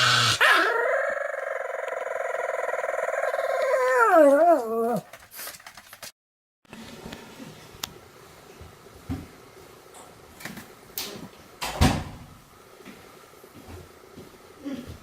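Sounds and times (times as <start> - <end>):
dog howling: 0.4 - 5.1.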